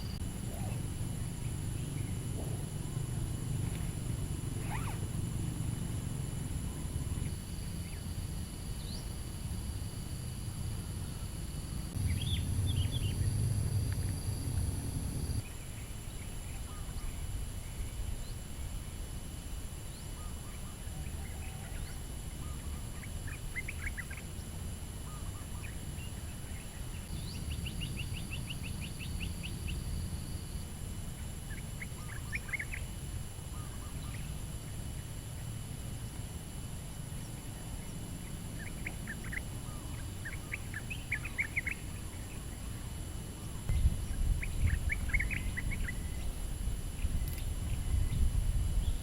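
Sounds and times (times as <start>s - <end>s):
small birds chirping: 0.0s - 5.8s, 11.0s - 18.4s, 19.9s - 30.6s, 31.2s - 35.5s, 37.1s - 49.0s
steady low rumble: 0.0s - 15.6s, 26.0s - 49.0s
bird trill: 4.6s - 5.2s, 12.0s - 13.4s, 38.6s - 42.6s, 43.7s - 46.3s.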